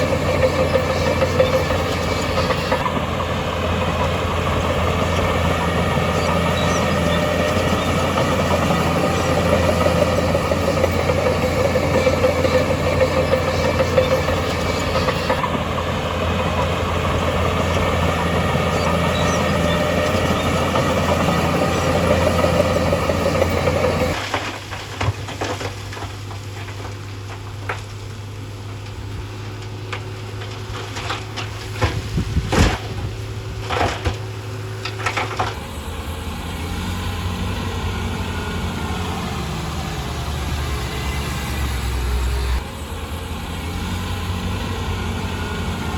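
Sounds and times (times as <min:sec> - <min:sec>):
scattered knocks and clicks: 0:00.0 - 0:03.0, 0:05.2 - 0:15.6
diesel engine running: 0:00.0 - 0:25.0, 0:25.9 - 0:45.9.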